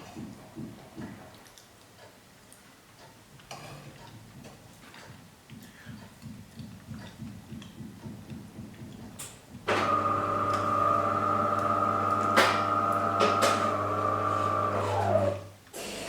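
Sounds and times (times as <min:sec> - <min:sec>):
machine humming: 0:09.7 - 0:15.5.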